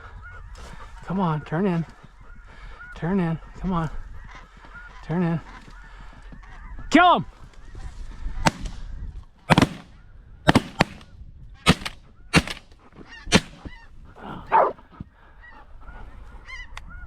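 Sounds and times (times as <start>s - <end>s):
geese honking: 2.0s - 6.8s, 11.7s - 15.6s
shotguns firing: 8.5s - 8.8s, 9.5s - 11.1s, 11.7s - 12.7s, 13.3s - 13.8s.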